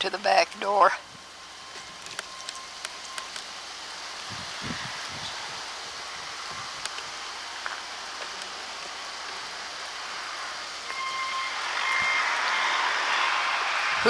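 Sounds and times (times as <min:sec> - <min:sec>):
outdoor hiss: 0:00.0 - 0:14.0
steady tone: 0:09.4 - 0:14.0.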